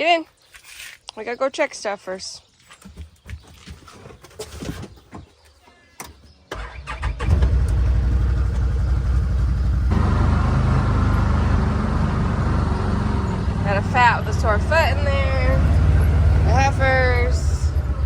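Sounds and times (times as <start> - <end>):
vehicle engine starting and running: 6.5 - 18.0.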